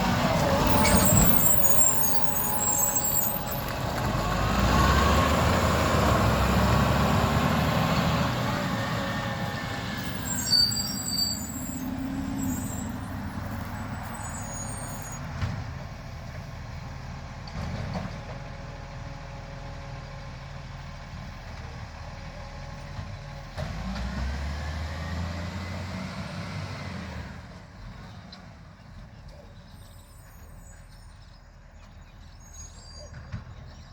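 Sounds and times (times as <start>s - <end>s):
diesel truck engine running: 0.0s - 32.4s
high squeals: 0.4s - 3.8s, 10.0s - 15.3s.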